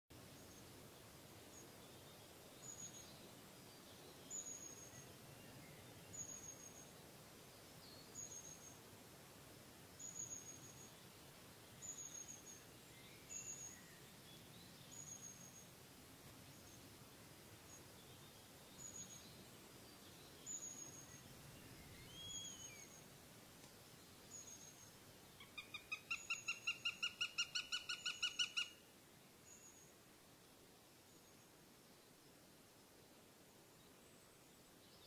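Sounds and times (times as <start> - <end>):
background hiss: 0.1 - 35.0
small bird calling: 25.4 - 28.8.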